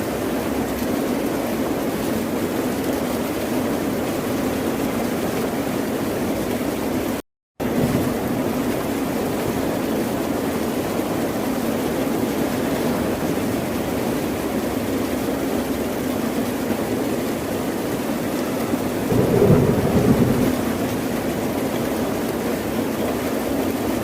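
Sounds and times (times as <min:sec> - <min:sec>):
ocean surf: 0:18.8 - 0:21.8.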